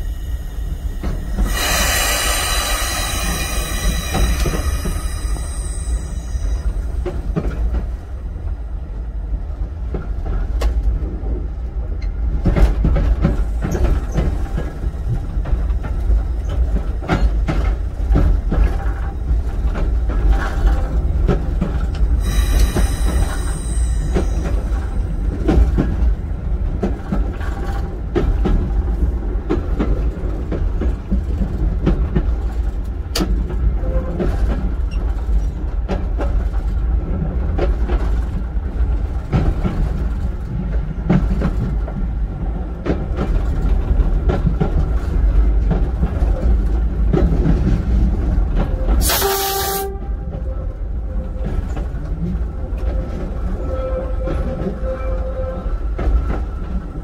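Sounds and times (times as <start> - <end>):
train rumbling on track: 0.0 - 57.0
train horn blast: 49.0 - 50.5.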